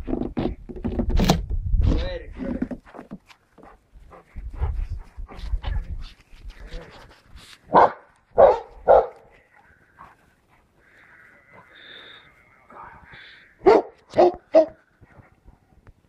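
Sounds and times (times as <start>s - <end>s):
dog barking: 7.7s - 9.3s, 13.6s - 14.8s.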